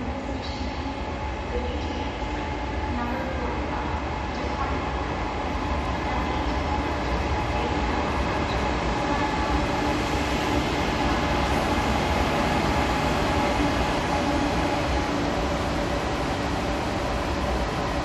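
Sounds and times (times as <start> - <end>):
high-speed train rumbling past: 0.0 - 18.0.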